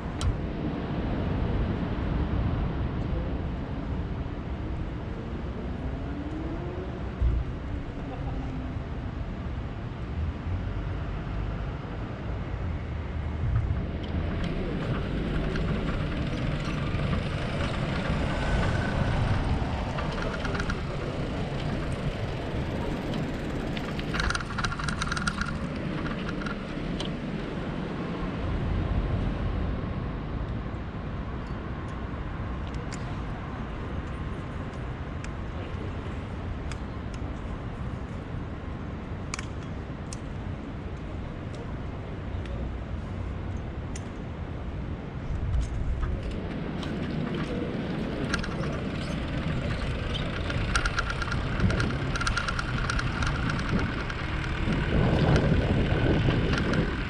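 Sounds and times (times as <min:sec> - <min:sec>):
bicycle riding rumble: 0:00.0 - 0:57.0
wind buffeting microphone: 0:00.0 - 0:57.0
rattling clicks: 0:13.7 - 0:27.2, 0:45.5 - 0:57.0.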